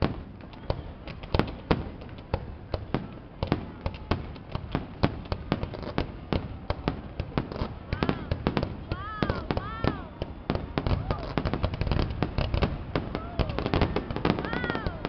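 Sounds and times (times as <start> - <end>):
fireworks bangs and pops: 0.0 - 15.0.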